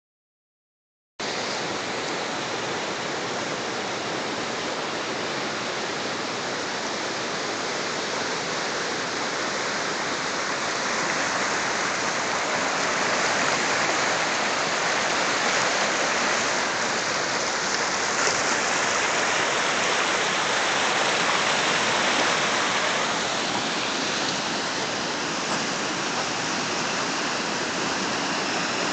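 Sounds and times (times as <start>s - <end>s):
river rushing: 1.2s - 28.9s.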